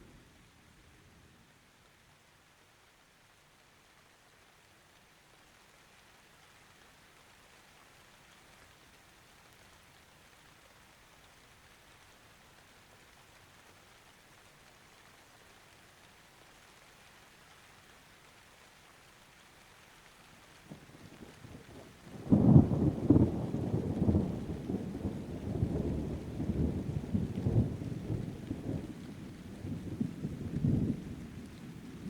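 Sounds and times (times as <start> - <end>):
faint steady rain hiss: 0.0 - 32.0
low rumble of thunder: 20.7 - 32.0.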